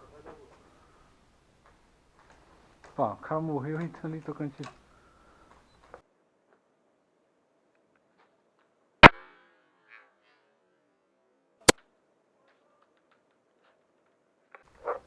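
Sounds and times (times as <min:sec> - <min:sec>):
airsoft rifle shots: 0:09.0 - 0:09.4.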